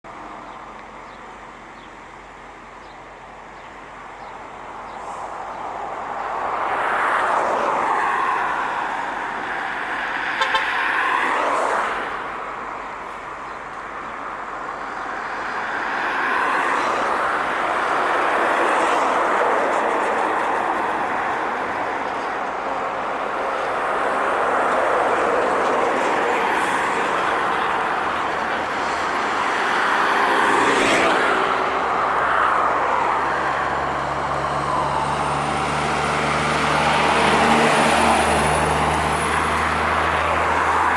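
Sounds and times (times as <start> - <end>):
heavy trucks passing: 1.6 - 40.9
vehicle horn: 10.4 - 10.9.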